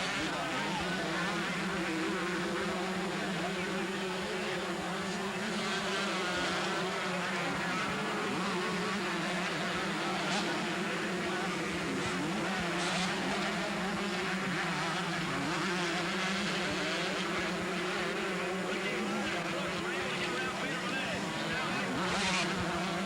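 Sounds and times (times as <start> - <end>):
motocross bikes racing: 0.0 - 23.0.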